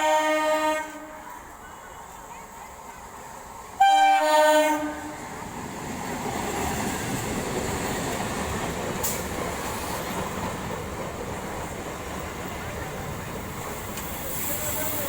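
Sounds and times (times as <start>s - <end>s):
train horn blast: 0.0s - 1.4s, 3.8s - 5.3s
train rumbling along track: 0.0s - 15.0s.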